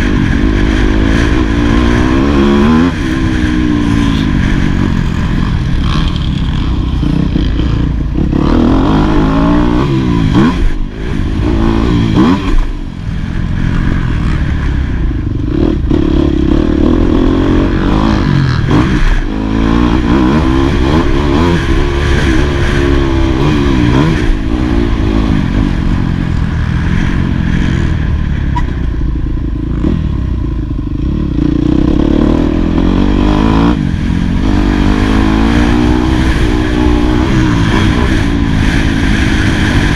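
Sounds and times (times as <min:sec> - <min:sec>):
motocross engine revving hard: 0:05.8 - 0:12.7, 0:15.6 - 0:25.5, 0:31.8 - 0:39.9.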